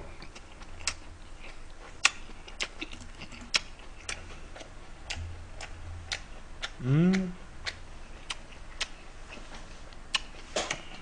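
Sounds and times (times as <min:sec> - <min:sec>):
wet chewing clicks and smacks: 0:00.1 - 0:11.0.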